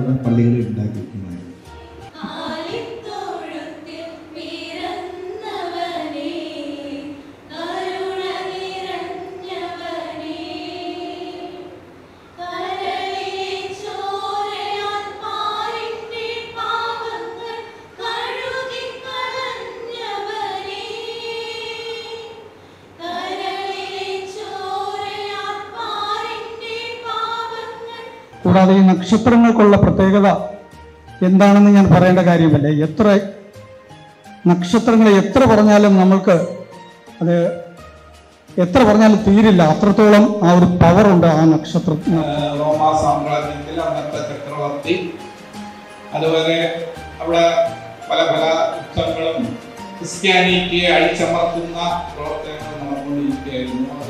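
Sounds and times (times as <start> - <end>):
women singing unaccompanied: 2.1 - 28.3.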